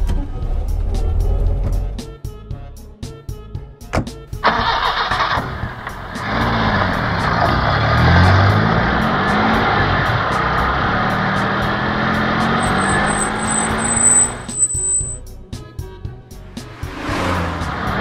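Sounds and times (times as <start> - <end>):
car engine hum: 4.0 - 15.2, 16.5 - 18.0
rush of noise: 16.6 - 18.0.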